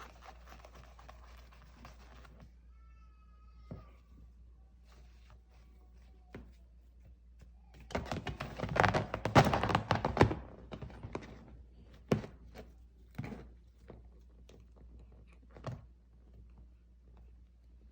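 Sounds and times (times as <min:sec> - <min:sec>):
scratches and thumps: 0:07.8 - 0:16.4.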